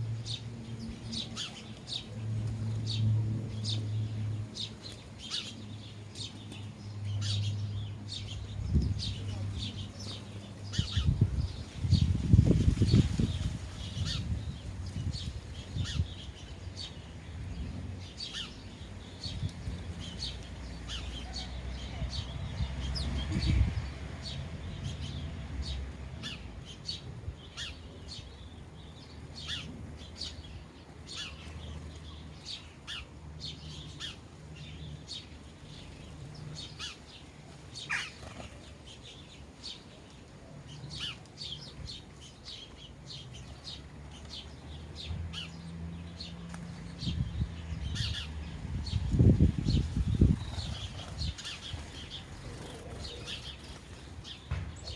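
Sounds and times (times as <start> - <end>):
sparrows chirping: 0.0 - 54.9
dull thump: 54.5 - 54.9.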